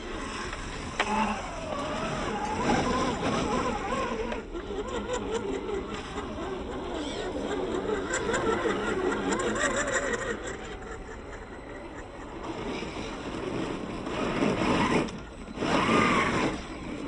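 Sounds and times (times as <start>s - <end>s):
toy truck motor whirring: 0.0s - 17.0s.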